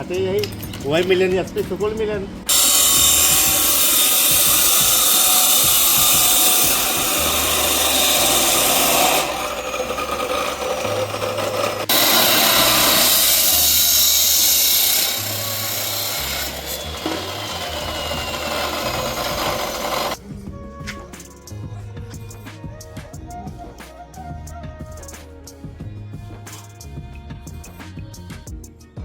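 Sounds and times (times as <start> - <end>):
power tool rasping: 2.5 - 20.2.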